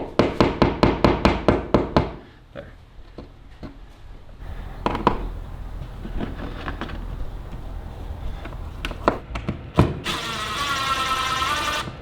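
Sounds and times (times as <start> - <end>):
low steady rumble: 4.4 - 9.2
tools knocking and clunking: 4.8 - 5.3.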